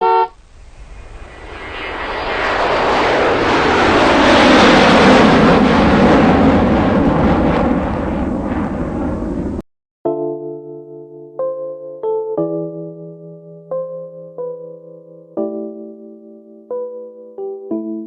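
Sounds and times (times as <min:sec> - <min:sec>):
loud rushing noise: 0:00.4 - 0:07.2.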